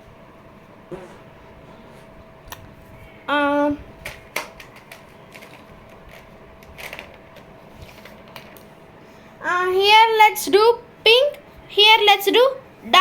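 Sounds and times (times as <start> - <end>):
faint steady hum: 0.0 - 13.0
pens clicking and tapping on paper: 4.0 - 8.7.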